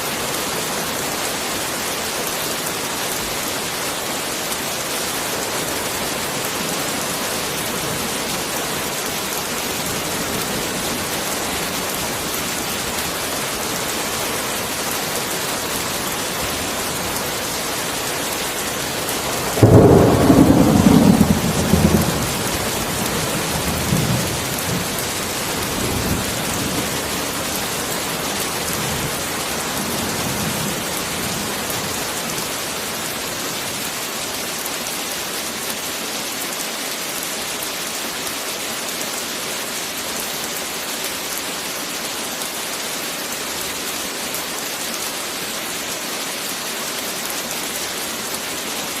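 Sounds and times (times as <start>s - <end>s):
heavy rain hissing: 0.0s - 49.0s
thunder rumbling: 19.4s - 27.1s.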